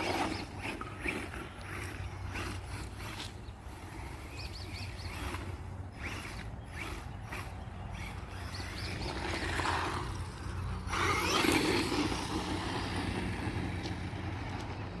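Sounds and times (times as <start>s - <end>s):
electric motor whining: 0.0s - 14.5s.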